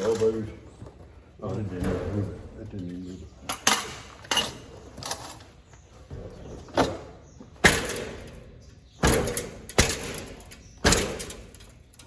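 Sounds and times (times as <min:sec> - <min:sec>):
sharp knocks on machinery: 0:07.6 - 0:08.4, 0:09.0 - 0:11.7.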